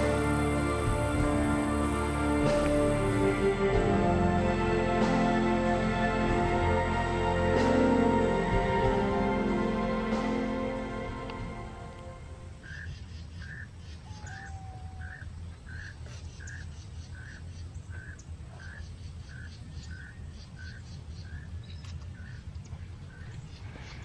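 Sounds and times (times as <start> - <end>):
low rumble: 0.0 - 12.7.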